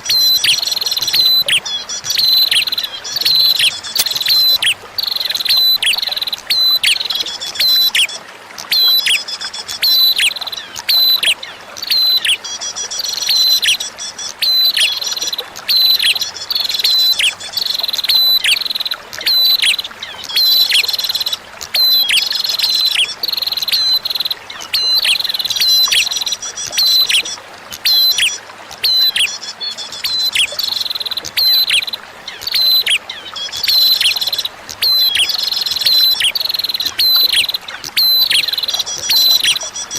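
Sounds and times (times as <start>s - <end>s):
bird chip notes: 0.2s - 4.8s.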